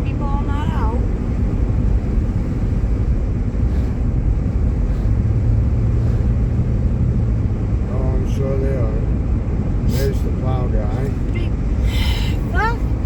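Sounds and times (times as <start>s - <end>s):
low steady drone: 0.0s - 9.2s
car road and engine noise: 0.0s - 13.0s.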